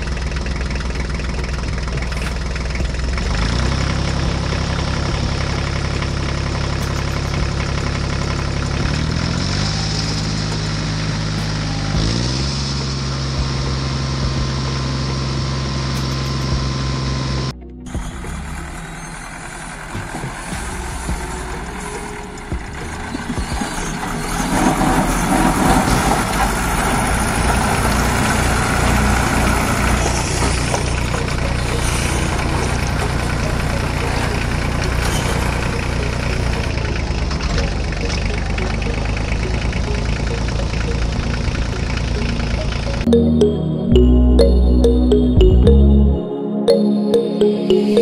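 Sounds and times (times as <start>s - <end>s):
engine idling rattly: 0.0s - 17.3s, 17.9s - 43.1s.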